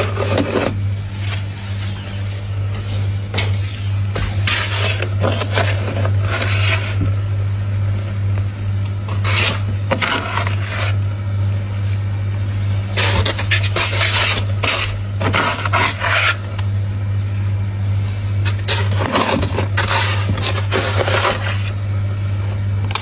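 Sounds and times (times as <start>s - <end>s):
frost scraped and crushed: 0.0s - 16.6s, 18.0s - 23.0s
steady low hum: 0.0s - 23.0s.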